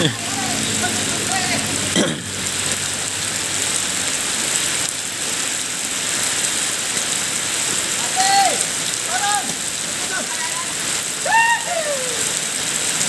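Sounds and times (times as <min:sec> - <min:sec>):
person shouting: 0:00.0 - 0:01.7, 0:08.0 - 0:12.3
heavy rain falling: 0:00.0 - 0:13.0.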